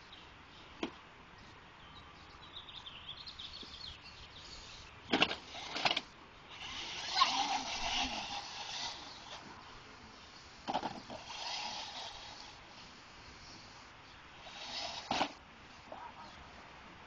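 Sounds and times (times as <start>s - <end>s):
faint bird chirps: 0.0s - 5.1s
toy truck rolling: 5.1s - 9.5s, 10.6s - 12.6s, 14.4s - 15.4s
scraping bursts: 5.1s - 16.5s.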